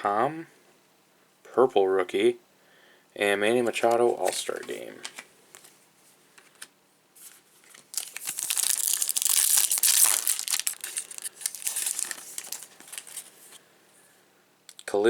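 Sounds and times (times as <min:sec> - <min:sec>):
foil wrapper tearing and crinkling: 0:07.7 - 0:13.3.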